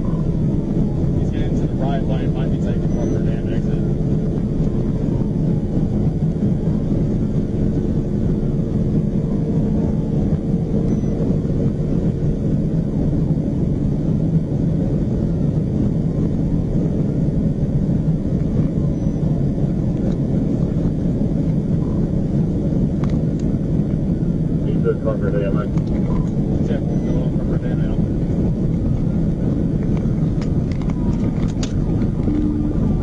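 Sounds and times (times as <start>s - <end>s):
engine tyre and wind rumble: 0.0s - 33.0s
faint siren wail: 31.0s - 33.0s.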